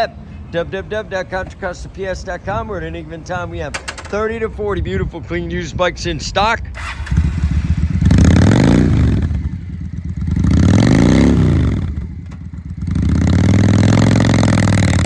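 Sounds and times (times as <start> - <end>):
motorcycle engine revving: 6.7 - 15.0.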